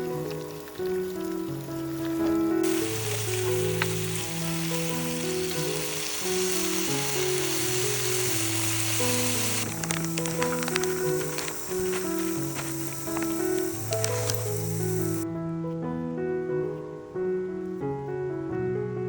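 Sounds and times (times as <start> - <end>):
food sizzling in frying: 0.0 - 15.2.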